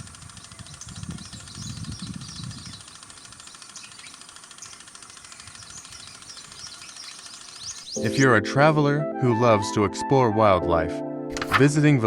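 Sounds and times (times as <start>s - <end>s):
birds chirping: 0.0s - 8.4s.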